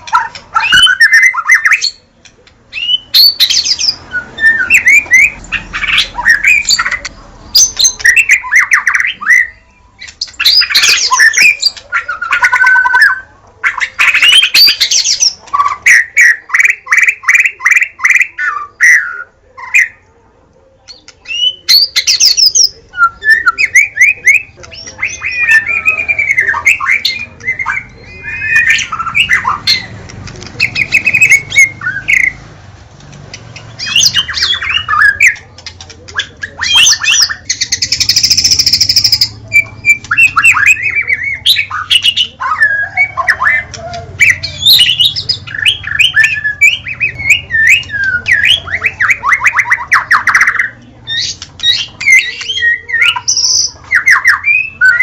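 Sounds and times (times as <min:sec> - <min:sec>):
bird singing whistles: 0:02.8 - 0:05.4.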